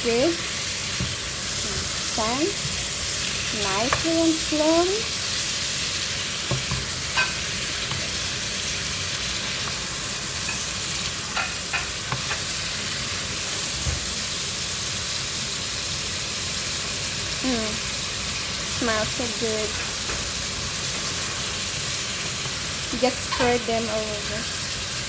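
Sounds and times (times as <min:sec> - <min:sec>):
food sizzling in a frying pan: 0:00.0 - 0:25.0
spoon scraping a pan: 0:00.5 - 0:12.5, 0:22.4 - 0:23.7.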